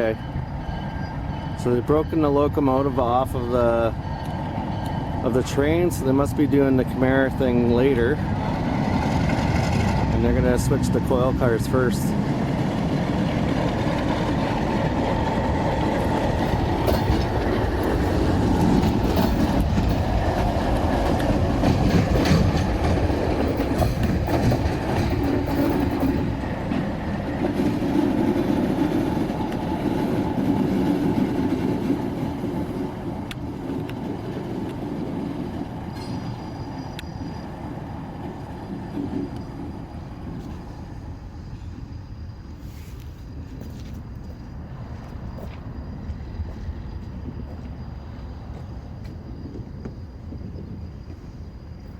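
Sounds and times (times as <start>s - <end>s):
freight train rumbling: 0.0s - 51.9s
wheels clacking over rails: 1.5s - 41.2s.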